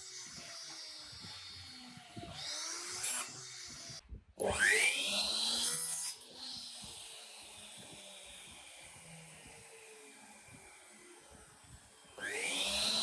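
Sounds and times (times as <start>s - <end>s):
loud rising whine: 4.4s - 13.0s.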